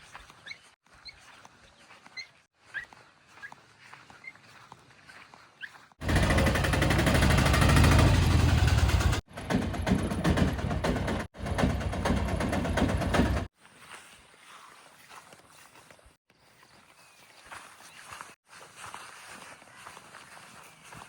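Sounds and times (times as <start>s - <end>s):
diesel machinery engine pulsing: 6.0s - 13.5s.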